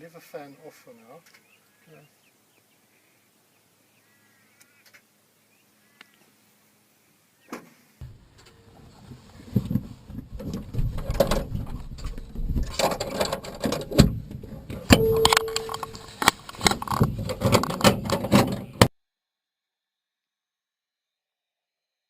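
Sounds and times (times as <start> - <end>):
clicks and knocks of handling: 10.4 - 18.9
short steady tone: 14.9 - 16.2.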